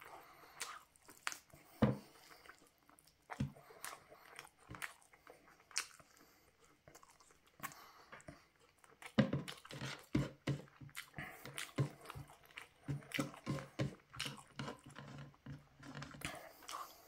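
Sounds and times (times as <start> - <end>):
chewing and wet mouth smacks: 0.0 - 15.1, 16.1 - 17.0.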